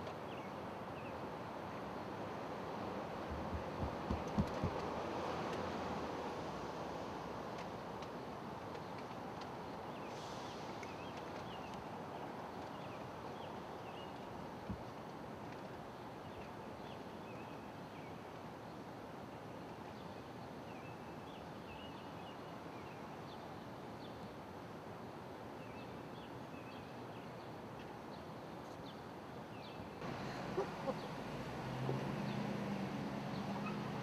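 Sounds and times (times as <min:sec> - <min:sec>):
small birds chirping: 0:29.6 - 0:34.0.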